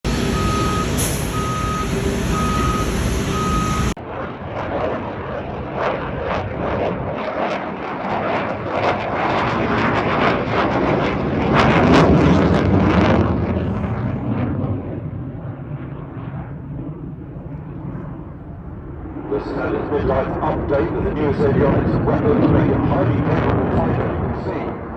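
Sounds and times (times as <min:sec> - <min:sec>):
fighter jet roaring past: 0:00.1 - 0:24.9
electronic beeps: 0:00.4 - 0:04.0.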